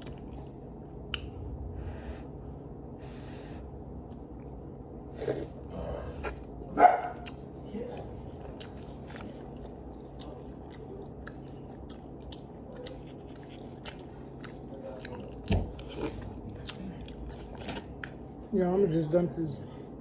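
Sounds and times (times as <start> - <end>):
person chewing food: 0.0 - 1.5, 4.0 - 18.5.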